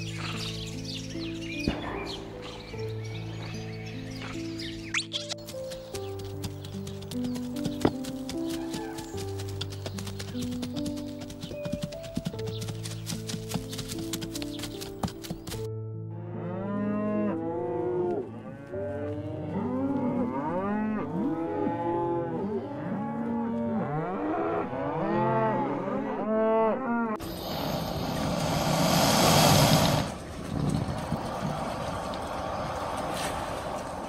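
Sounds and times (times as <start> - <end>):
loud rushing hiss: 27.2 - 30.2.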